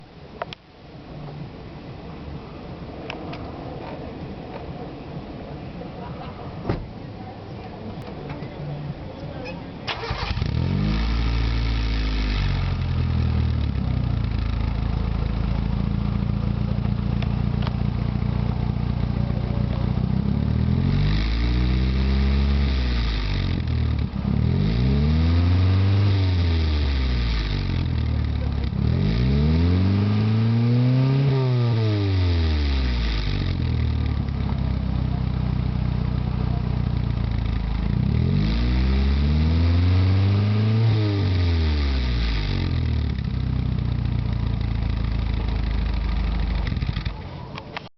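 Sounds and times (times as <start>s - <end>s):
car engine starting: 9.4s - 47.9s
car engine revving: 9.9s - 47.2s.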